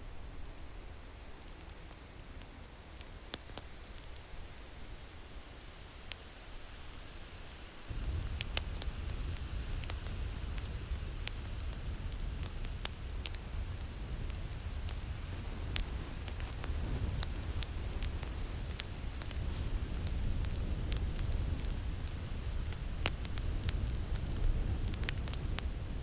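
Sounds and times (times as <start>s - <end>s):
fire crackling and popping: 0.0s - 6.2s, 6.8s - 26.0s
low wind rumble: 6.7s - 26.0s.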